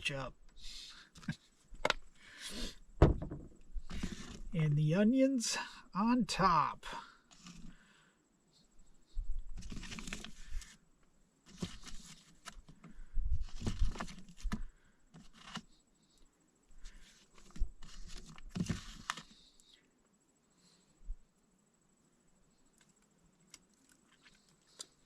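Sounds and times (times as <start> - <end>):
knocks: 3.0 - 3.6
packaging rustling and crinkling: 9.5 - 10.8, 11.5 - 12.6, 13.4 - 14.6, 17.3 - 19.4.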